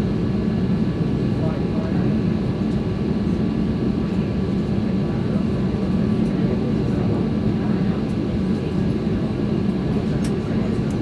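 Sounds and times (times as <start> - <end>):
airplane cabin drone: 0.0 - 11.0.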